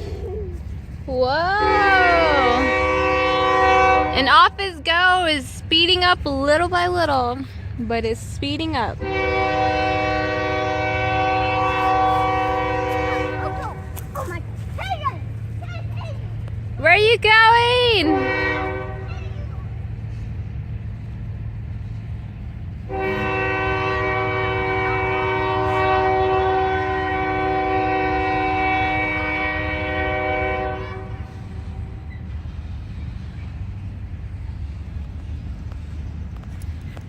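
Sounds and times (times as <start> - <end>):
train rumbling past: 0.0 - 37.0
train air horn blast: 1.6 - 4.5, 8.9 - 14.0, 17.9 - 19.3, 22.8 - 32.1.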